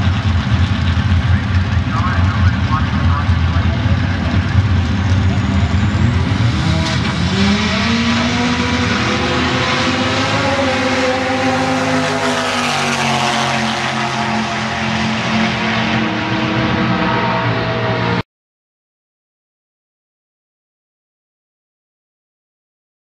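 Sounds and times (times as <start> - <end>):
turbocharged racing engine running: 0.0 - 18.2.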